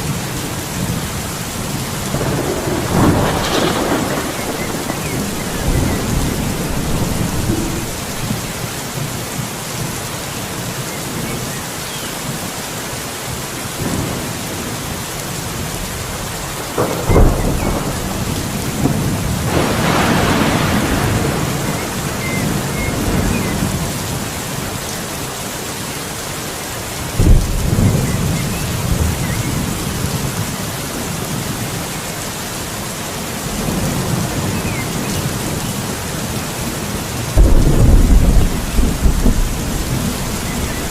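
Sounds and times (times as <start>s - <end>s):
thunder cracking and rumbling: 0.0s - 8.7s, 15.5s - 24.4s, 27.2s - 31.5s, 33.4s - 40.9s
heavy rain: 0.0s - 40.9s.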